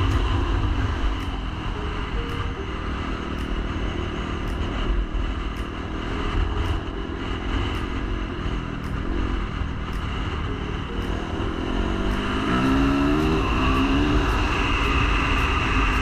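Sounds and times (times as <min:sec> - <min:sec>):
heavy low rumble: 0:00.0 - 0:16.0
dirt bike engine revving: 0:11.0 - 0:16.0.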